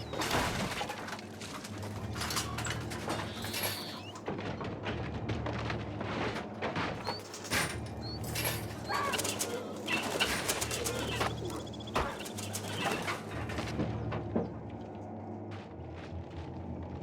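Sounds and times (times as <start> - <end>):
birds calling: 0.0 - 0.8, 1.7 - 4.2, 6.9 - 14.6
birds flapping wings: 0.0 - 4.8, 5.7 - 13.8
steady low hum: 0.0 - 17.0.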